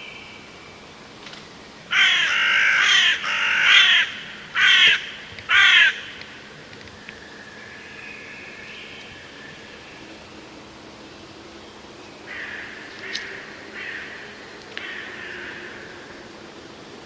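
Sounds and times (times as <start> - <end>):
bird cawing harshly: 1.9 - 6.2, 14.8 - 15.9.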